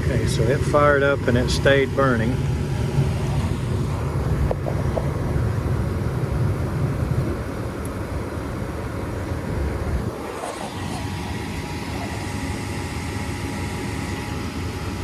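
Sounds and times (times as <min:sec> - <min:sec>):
furnace running noise: 0:00.0 - 0:15.0
gas furnace low rumble: 0:00.0 - 0:15.0.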